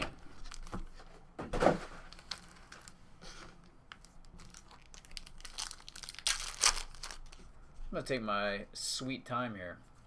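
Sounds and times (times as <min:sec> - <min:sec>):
card wrappers crinkling and tearing: 0:02.1 - 0:03.0, 0:03.9 - 0:07.5.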